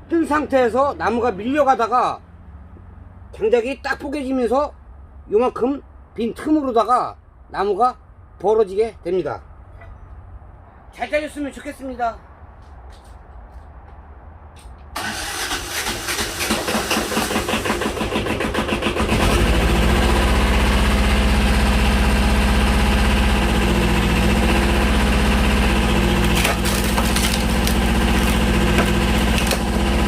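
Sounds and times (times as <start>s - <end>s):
tractor engine driving pump: 14.9s - 30.0s.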